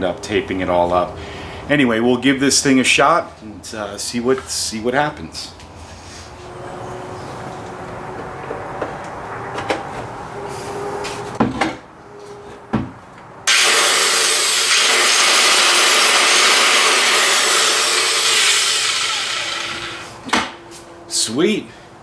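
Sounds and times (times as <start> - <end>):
circular saw running: 13.5 - 20.2.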